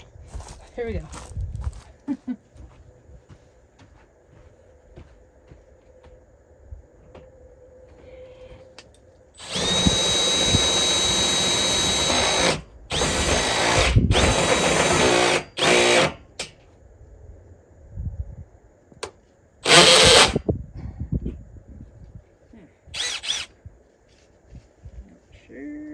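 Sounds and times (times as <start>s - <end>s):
power drill cutting metal wall: 9.4s - 16.4s, 19.6s - 20.4s, 23.0s - 23.5s.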